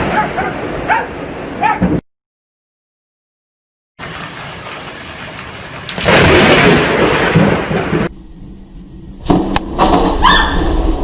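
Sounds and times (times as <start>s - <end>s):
rain falling: 4.0s - 8.1s
thunderclap rumbling: 4.0s - 11.0s
lightning strike crack: 5.8s - 8.1s, 9.2s - 11.0s.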